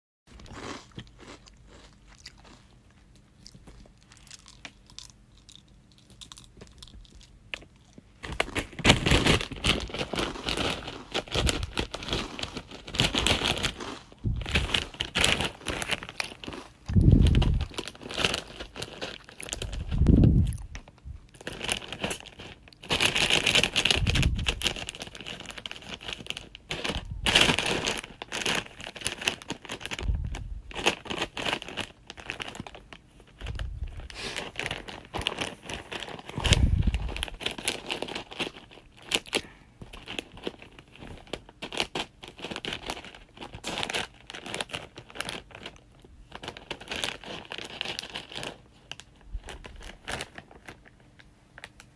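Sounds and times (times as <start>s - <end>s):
crinkling and rustling material: 0.3s - 51.9s
dull low thumps: 16.9s - 17.7s.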